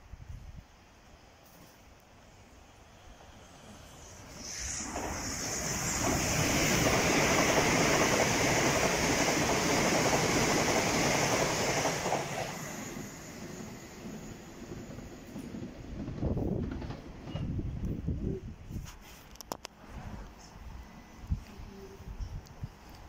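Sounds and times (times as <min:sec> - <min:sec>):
train passing at speed: 0:02.1 - 0:18.5.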